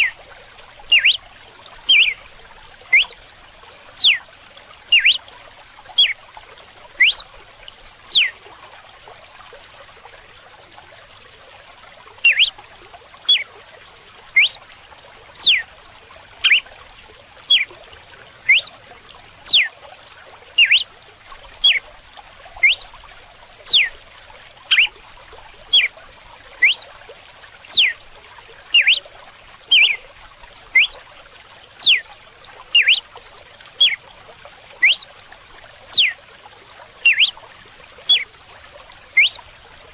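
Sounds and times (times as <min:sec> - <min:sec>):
trickle of running water: 0:00.0 - 0:39.9
bird whistling sharp notes: 0:00.9 - 0:01.2, 0:01.9 - 0:02.2, 0:02.9 - 0:03.2, 0:04.0 - 0:04.2, 0:04.9 - 0:05.2, 0:07.0 - 0:07.2, 0:08.1 - 0:08.3, 0:12.3 - 0:12.6, 0:14.4 - 0:14.6, 0:15.4 - 0:15.6, 0:16.4 - 0:16.7, 0:18.5 - 0:18.8, 0:19.5 - 0:19.7, 0:20.6 - 0:20.8, 0:22.6 - 0:22.9, 0:23.7 - 0:23.9, 0:24.7 - 0:24.9, 0:26.6 - 0:26.9, 0:27.7 - 0:28.0, 0:28.8 - 0:29.0, 0:29.7 - 0:30.0, 0:30.8 - 0:31.0, 0:31.8 - 0:32.0, 0:32.8 - 0:33.0, 0:34.8 - 0:35.1, 0:35.9 - 0:36.2, 0:37.1 - 0:37.4, 0:39.2 - 0:39.4.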